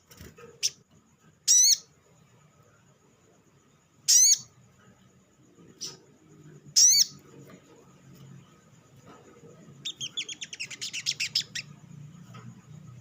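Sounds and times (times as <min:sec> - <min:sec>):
sunbird calling: 0:01.5 - 0:01.9, 0:04.0 - 0:04.5, 0:06.7 - 0:07.2, 0:09.8 - 0:11.7.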